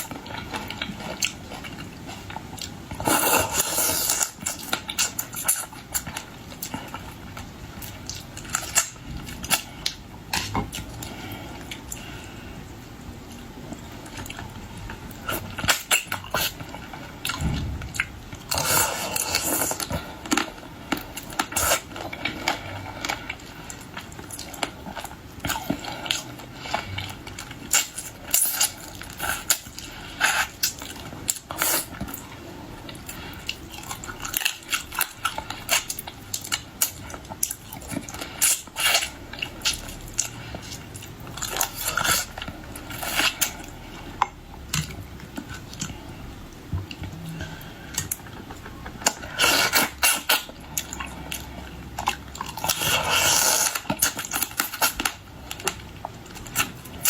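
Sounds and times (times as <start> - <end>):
chewing and sucking: 46.9 - 57.0.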